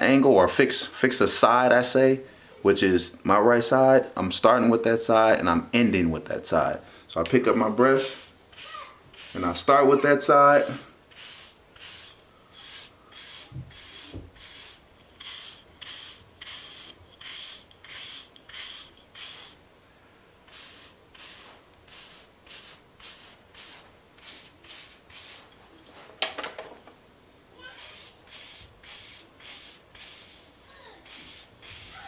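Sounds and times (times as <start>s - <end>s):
hair brush stroking through hair: 7.9s - 19.6s, 20.5s - 26.2s, 27.6s - 32.0s.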